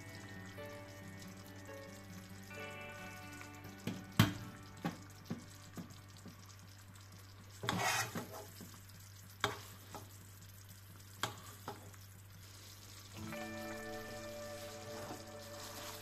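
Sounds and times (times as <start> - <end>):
sauce simmering in a pan: 0.0 - 16.0
sauce popping: 0.1 - 16.0
metal spoon scraping a pan: 7.6 - 8.6.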